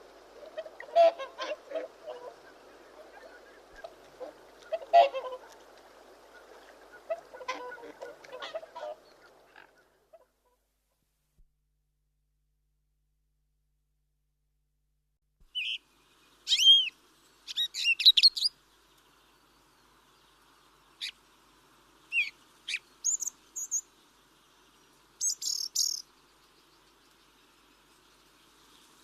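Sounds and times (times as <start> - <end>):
faint background hiss: 0.0 - 11.5, 15.4 - 29.0
birds chirping and whistling: 16.5 - 16.9, 25.2 - 26.0.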